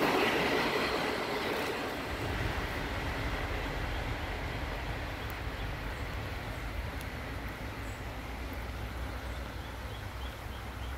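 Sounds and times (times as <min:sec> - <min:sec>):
freight train rumbling and hissing: 0:00.0 - 0:10.9.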